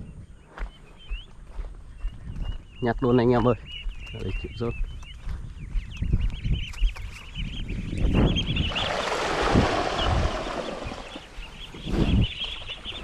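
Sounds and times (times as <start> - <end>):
small birds chirping: 0.0 - 13.0
footsteps: 0.5 - 7.4.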